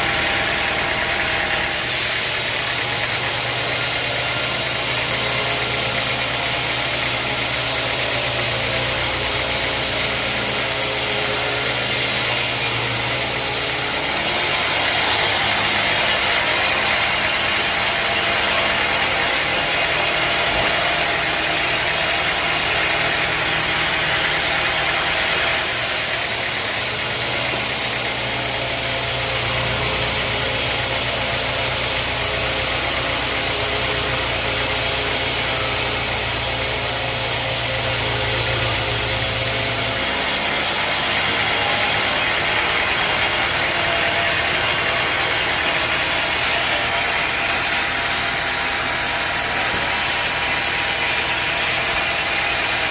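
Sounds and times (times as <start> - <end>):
sawmill machinery droning: 0.0 - 52.9
strong hiss: 1.6 - 14.0, 24.9 - 40.0.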